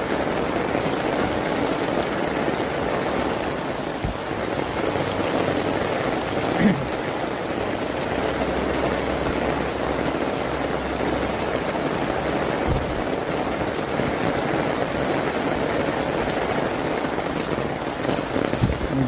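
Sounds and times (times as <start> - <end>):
heavy rain pattering: 0.0 - 19.0
low thump: 4.0 - 4.3, 12.6 - 13.2, 18.6 - 18.9.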